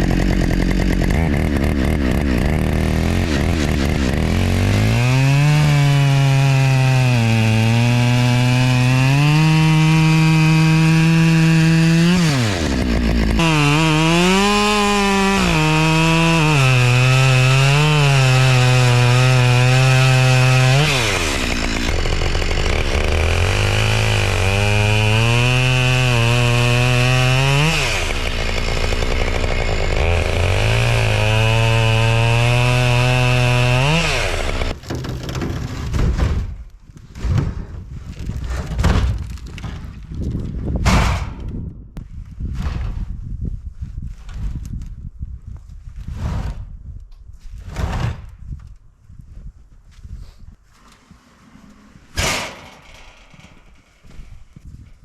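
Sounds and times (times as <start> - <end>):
chainsaw cutting wood: 0.0 - 36.5, 51.8 - 54.3.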